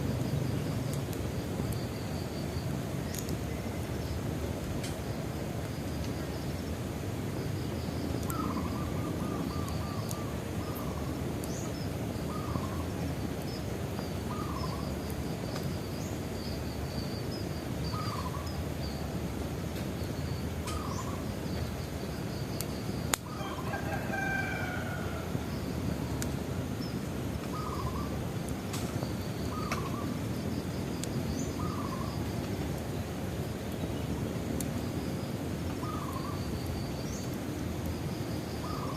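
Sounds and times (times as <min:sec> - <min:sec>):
bonfire crackling: 0:00.0 - 0:38.9
birds chirping: 0:20.0 - 0:22.0, 0:26.8 - 0:28.2, 0:31.2 - 0:32.3, 0:35.8 - 0:37.3
fire pop: 0:28.7 - 0:29.9.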